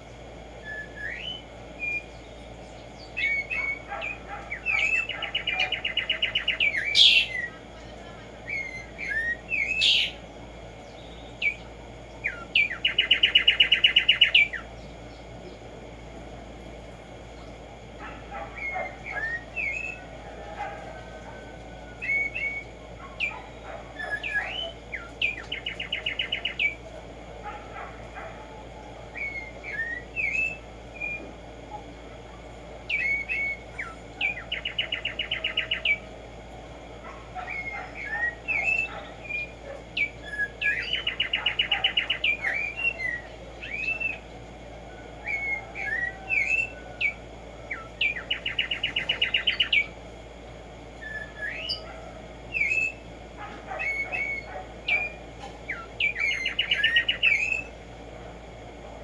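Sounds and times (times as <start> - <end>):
bird chirps: 0.1 - 15.6, 22.0 - 26.9, 27.5 - 36.1, 37.0 - 44.3, 45.2 - 50.0, 51.0 - 57.8
sparrow singing whistles and trill: 0.6 - 7.6, 8.4 - 10.2, 10.8 - 14.8, 18.1 - 20.0, 22.0 - 26.8, 29.1 - 31.3, 32.9 - 36.0, 37.4 - 44.2, 45.2 - 50.0, 51.0 - 53.1, 53.7 - 57.8.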